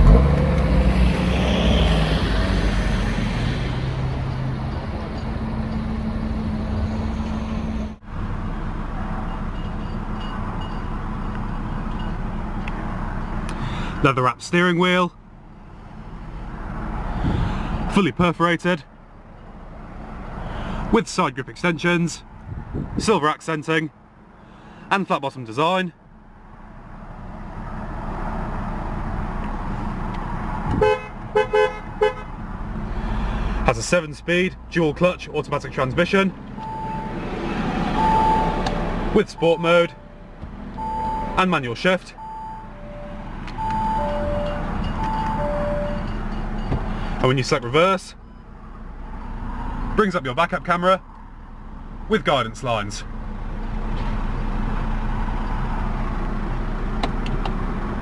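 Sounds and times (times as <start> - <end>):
car engine idling: 8.0 - 22.5, 23.2 - 58.0
car horn toots: 30.7 - 32.4, 40.8 - 46.7.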